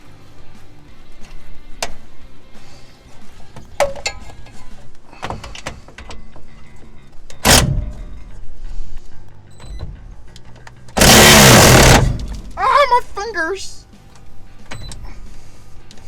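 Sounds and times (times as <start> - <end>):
background music: 0.0 - 16.0
metal clatter: 3.6 - 6.0, 10.2 - 12.6.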